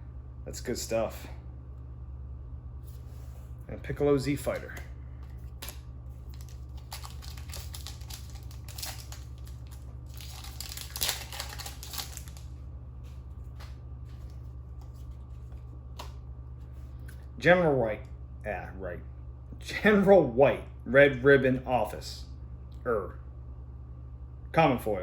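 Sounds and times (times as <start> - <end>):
steady low hum: 0.0 - 25.0
cards and packaging crinkling: 4.4 - 16.2.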